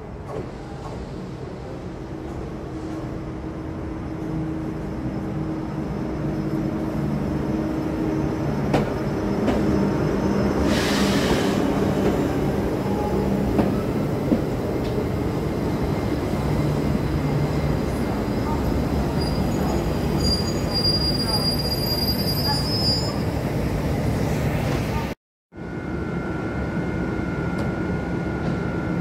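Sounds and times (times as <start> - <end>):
train wheel noise: 7.0 - 21.6.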